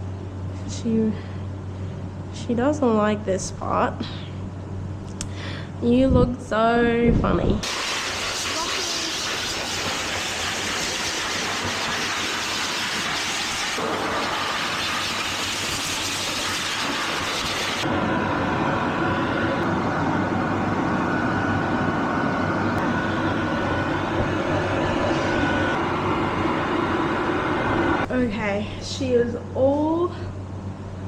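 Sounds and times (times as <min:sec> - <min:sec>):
pet dryer blasting air: 0:07.6 - 0:28.2.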